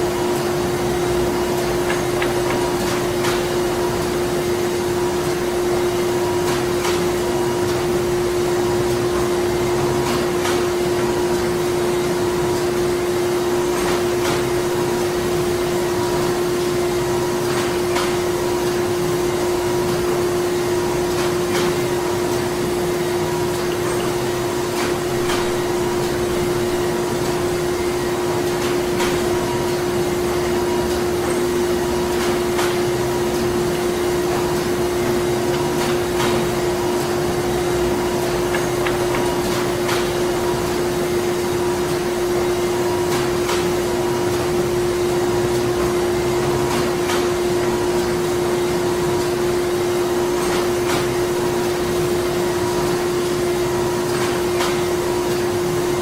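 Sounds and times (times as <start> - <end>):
factory machinery humming: 0.0 - 56.0.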